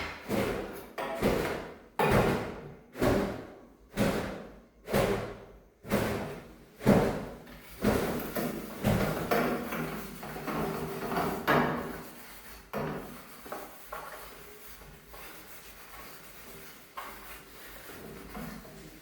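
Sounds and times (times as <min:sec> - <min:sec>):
household objects knocking and clattering: 0:00.0 - 0:02.5.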